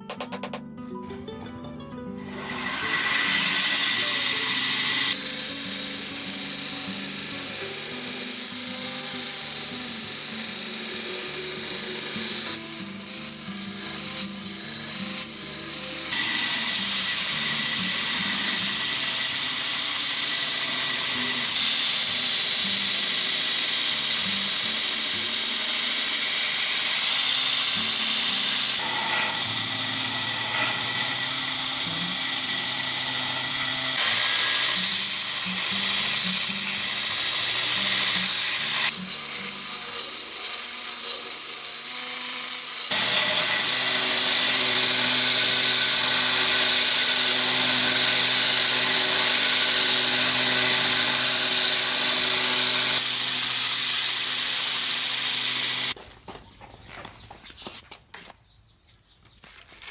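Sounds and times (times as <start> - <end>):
power tool grinding steel: 0.0 - 1.4, 2.0 - 56.0
faint background music: 0.0 - 42.7.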